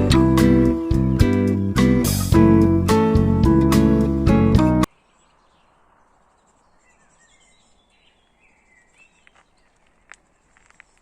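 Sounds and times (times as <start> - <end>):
soft bird chirps: 4.9 - 11.0.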